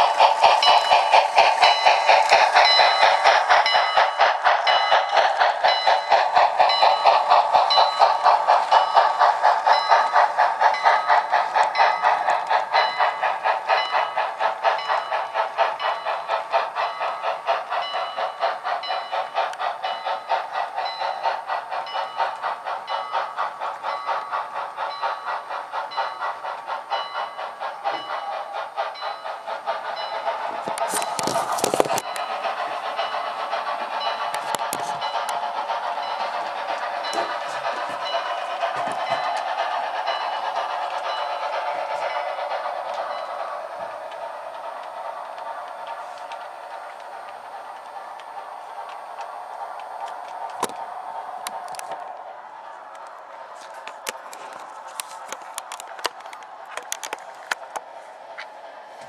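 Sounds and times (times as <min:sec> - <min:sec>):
model train running on track: 0:00.0 - 0:59.0.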